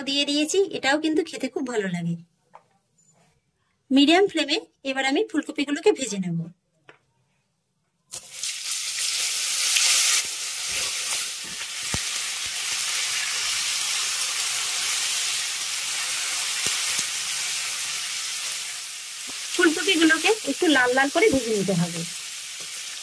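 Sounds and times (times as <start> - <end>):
florets frying in hot oil: 8.1 - 23.0.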